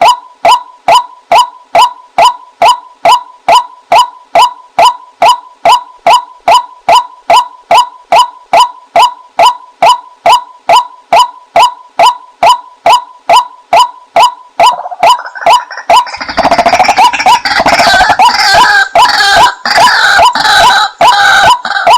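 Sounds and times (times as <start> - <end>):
noisy hiss: 0.0 - 21.0
waterhen kwak calls: 14.2 - 21.9.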